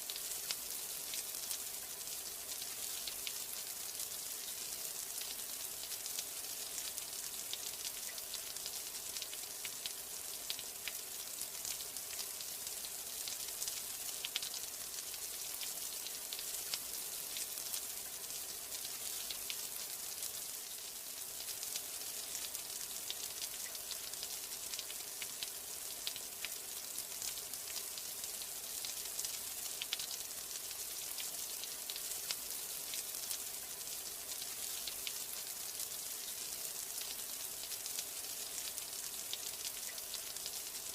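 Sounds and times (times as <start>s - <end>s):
rain hiss: 0.0s - 40.9s.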